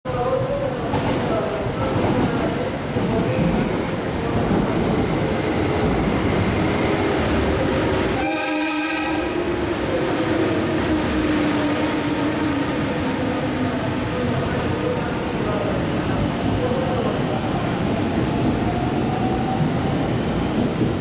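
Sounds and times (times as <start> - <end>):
electric train rumbling: 0.1 - 21.0
train horn: 8.2 - 9.4.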